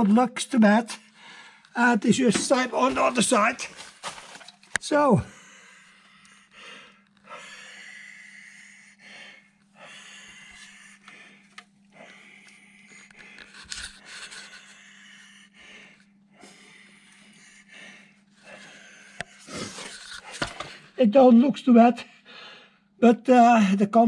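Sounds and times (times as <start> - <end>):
low electrical hum: 0.0 - 24.0
person breathing: 1.0 - 1.8, 5.2 - 21.0, 22.0 - 22.8.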